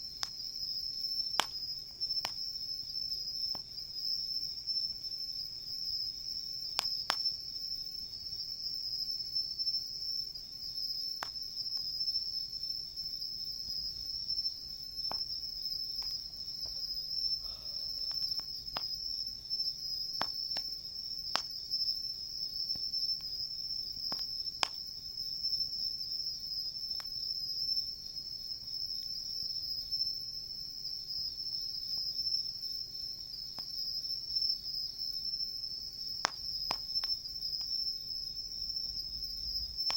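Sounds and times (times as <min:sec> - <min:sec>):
insects chorus: 0:00.0 - 0:39.9
campfire pops: 0:00.2 - 0:02.6, 0:06.6 - 0:07.4, 0:11.1 - 0:12.0, 0:15.0 - 0:21.9, 0:22.6 - 0:24.9, 0:36.2 - 0:37.9, 0:38.7 - 0:39.9.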